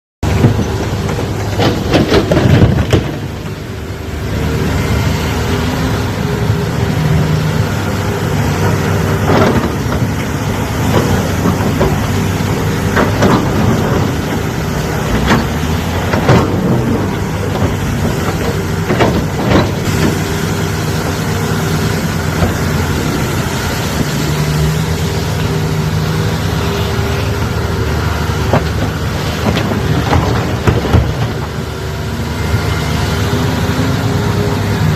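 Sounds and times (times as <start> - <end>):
sharp knocks and clanks: 0.2 - 3.6, 8.6 - 25.5, 28.4 - 31.7
excavator diesel engine running: 0.2 - 34.9.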